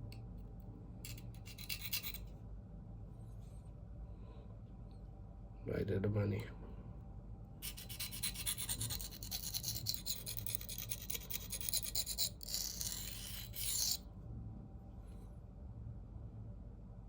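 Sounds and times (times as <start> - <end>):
knife scraping on sharpening plate: 1.1 - 2.2, 7.6 - 14.0.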